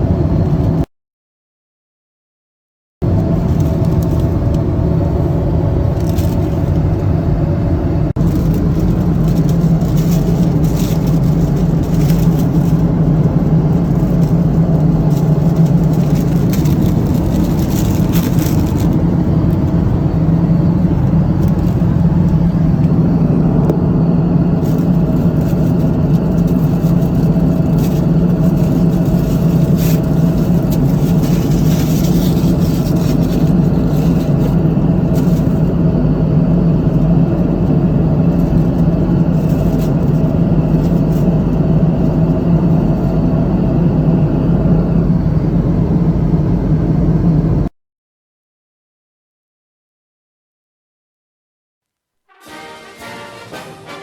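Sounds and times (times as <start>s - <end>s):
airliner cabin engine drone: 0.0s - 0.9s, 3.0s - 47.7s, 52.4s - 54.0s
faint rustles: 8.2s - 23.2s, 24.5s - 35.8s, 38.1s - 43.1s.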